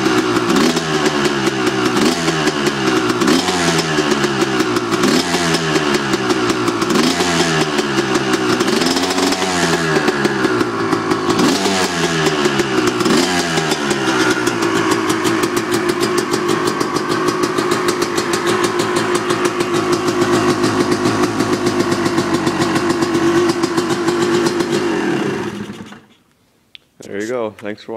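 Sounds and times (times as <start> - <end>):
two-stroke motorcycle engine revving: 0.0 - 26.1.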